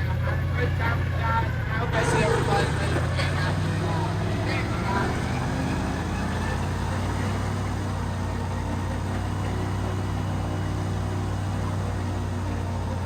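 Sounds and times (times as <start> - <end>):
airboat engine and propeller humming: 0.0 - 13.0.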